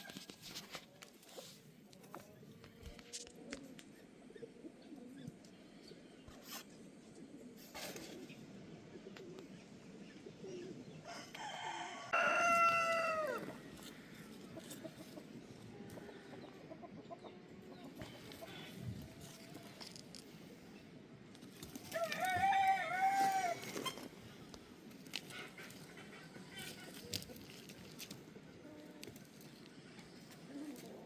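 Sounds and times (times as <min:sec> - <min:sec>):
rooster crowing: 0:11.0 - 0:13.5, 0:22.0 - 0:23.7.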